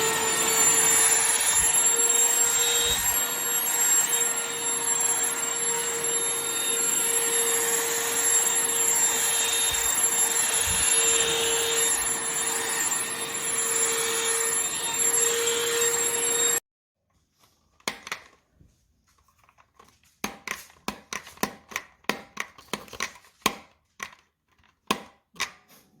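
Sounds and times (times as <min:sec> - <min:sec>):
handheld vacuum humming and whining: 0:00.0 - 0:16.6.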